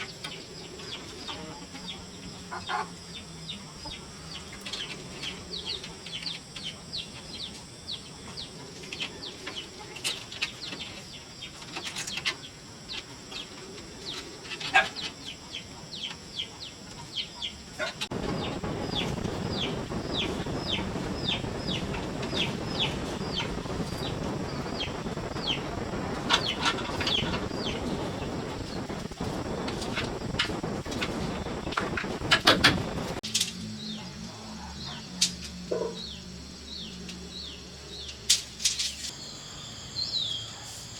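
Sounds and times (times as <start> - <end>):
faint insect hum: 0.0 - 40.9
bird chirping: 15.0 - 33.2, 38.9 - 40.9
steady hiss: 18.1 - 33.8, 35.1 - 40.9.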